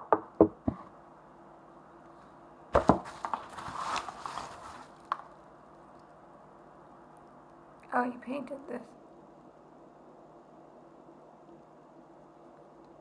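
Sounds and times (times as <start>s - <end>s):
sharp wooden knocks: 0.0s - 0.9s
packaging rustling: 2.8s - 5.5s.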